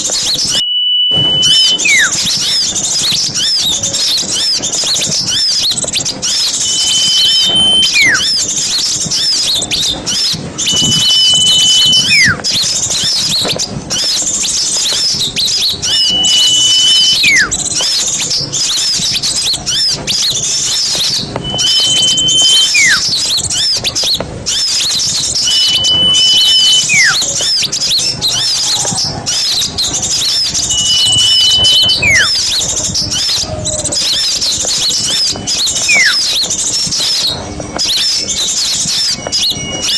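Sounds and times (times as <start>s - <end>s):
small birds chattering: 0.0s - 39.9s
whistled falling note: 0.3s - 2.6s, 6.3s - 8.4s, 10.6s - 12.4s, 15.8s - 17.5s, 21.4s - 23.2s, 25.3s - 27.4s, 30.3s - 32.6s, 35.7s - 36.4s.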